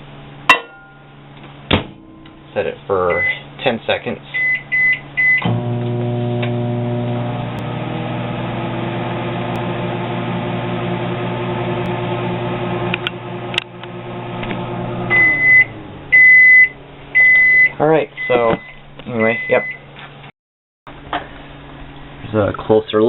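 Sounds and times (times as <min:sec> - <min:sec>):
long microwave beeps: 0:03.1 - 0:03.4, 0:04.4 - 0:05.6, 0:15.1 - 0:19.9
microwave oven humming: 0:04.4 - 0:20.0.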